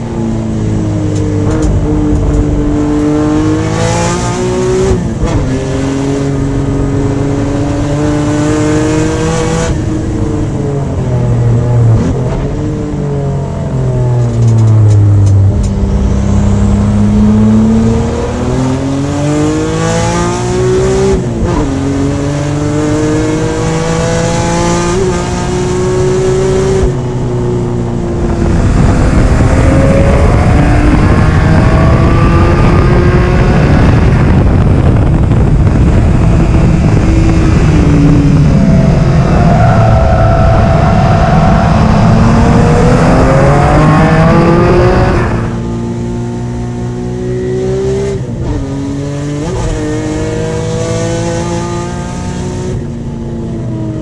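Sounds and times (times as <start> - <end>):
rushing noise: 0.0 - 21.1, 28.0 - 46.3
car engine driven hard: 0.0 - 54.0.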